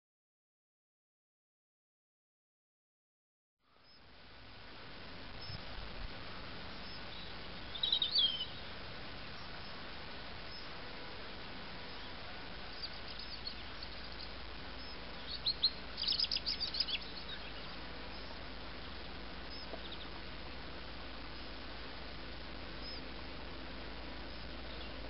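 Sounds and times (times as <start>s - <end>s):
steady background hiss: 3.6s - 25.0s
small bird chirping: 5.4s - 5.6s, 6.7s - 9.8s, 10.4s - 10.8s, 11.8s - 18.4s, 19.5s - 20.2s, 22.8s - 23.1s, 24.3s - 25.0s.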